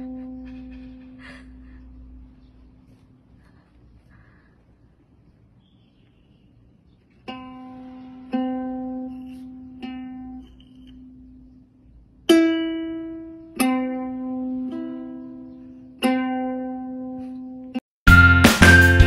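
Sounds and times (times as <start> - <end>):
ukulele strings plucked: 7.3 - 11.5, 12.2 - 17.8.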